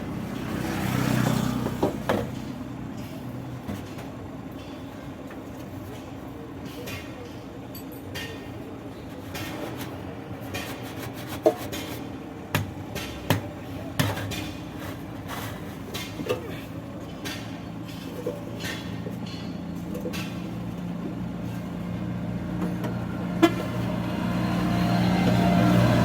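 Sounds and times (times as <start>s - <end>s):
sharp knocks and clanks: 9.3s - 14.9s, 15.9s - 20.7s
low engine hum: 19.8s - 26.0s.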